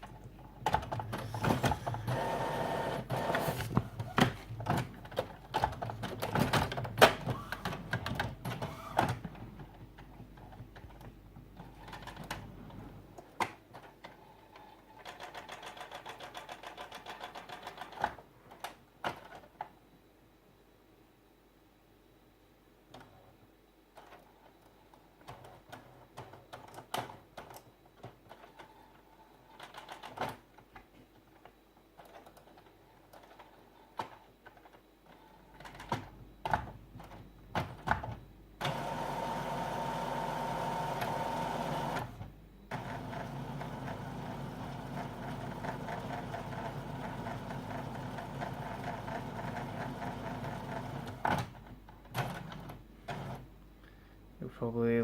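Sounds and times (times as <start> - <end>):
printer motor whirring: 0.7 - 9.3, 38.6 - 51.5.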